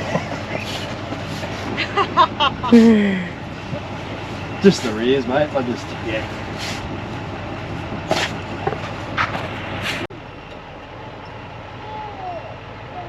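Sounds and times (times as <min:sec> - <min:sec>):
sharp scraping noises: 0:00.0 - 0:01.8, 0:04.1 - 0:07.2, 0:08.0 - 0:10.1
truck engine idling: 0:00.0 - 0:13.0.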